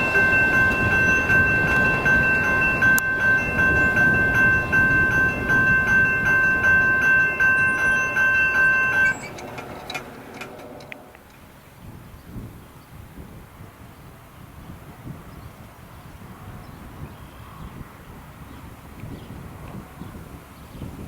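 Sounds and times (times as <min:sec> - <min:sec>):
crossing signal bell ringing: 0:00.0 - 0:11.6
freight train cars rumbling: 0:00.0 - 0:15.0
faint wind: 0:00.0 - 0:21.0.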